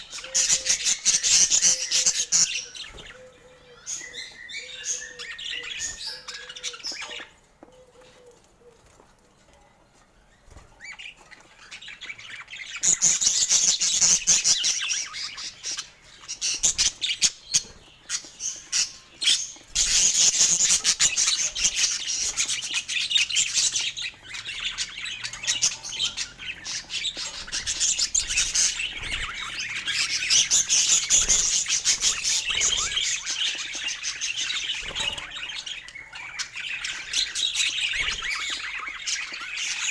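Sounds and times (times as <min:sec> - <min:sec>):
budgerigars chattering: 0:00.0 - 0:07.3, 0:12.4 - 0:39.9.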